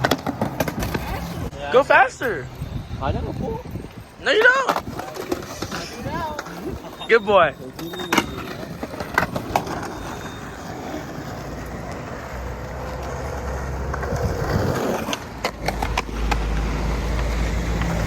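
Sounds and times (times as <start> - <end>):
skateboard clacks: 0.0 - 1.3, 4.3 - 7.0, 7.6 - 18.0
skateboard wheels rolling on pavement: 0.0 - 18.0.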